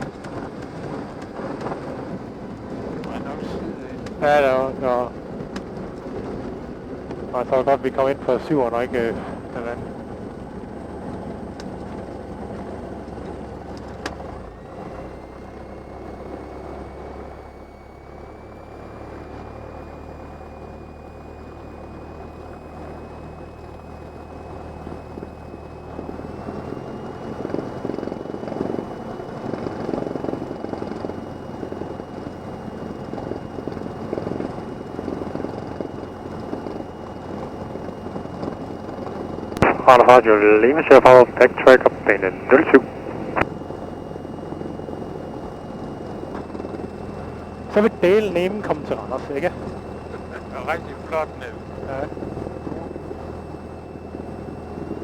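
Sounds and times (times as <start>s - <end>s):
aircraft engine running: 0.0s - 55.0s
thin rising whine: 34.7s - 55.0s.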